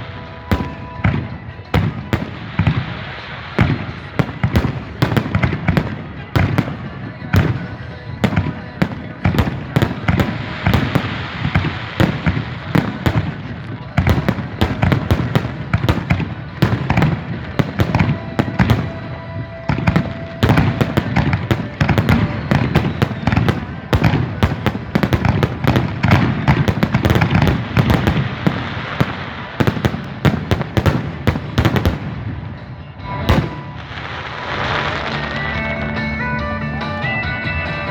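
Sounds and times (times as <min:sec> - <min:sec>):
fireworks cracking and banging: 0:00.0 - 0:35.7.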